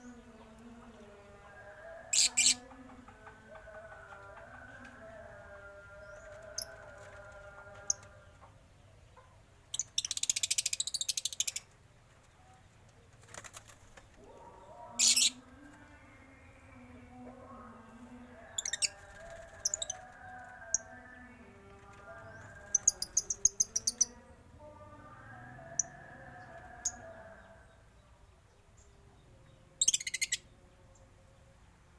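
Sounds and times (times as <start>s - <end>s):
shrill rapid bird chirping: 22.3s - 24.2s.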